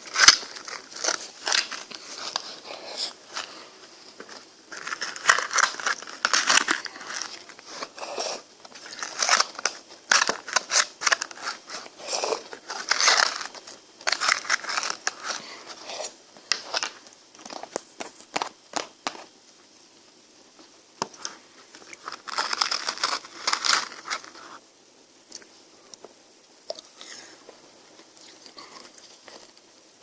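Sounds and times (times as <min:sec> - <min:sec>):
crunching of frozen ice cream: 0:00.0 - 0:03.6, 0:04.3 - 0:19.3, 0:21.8 - 0:24.6.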